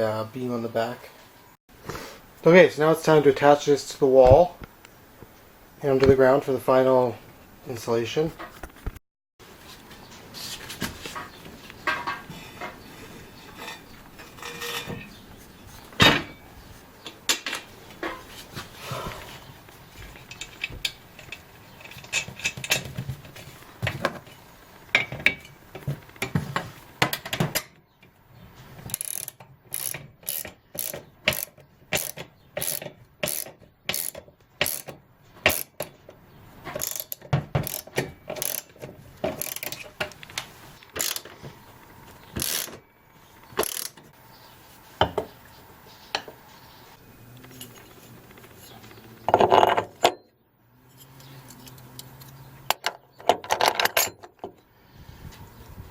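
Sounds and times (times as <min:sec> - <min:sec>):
ratchet wrench clicking: 0:28.9 - 0:34.9, 0:35.5 - 0:35.8, 0:36.8 - 0:38.7, 0:39.4 - 0:39.8, 0:41.0 - 0:41.3, 0:42.4 - 0:42.8, 0:43.6 - 0:44.0.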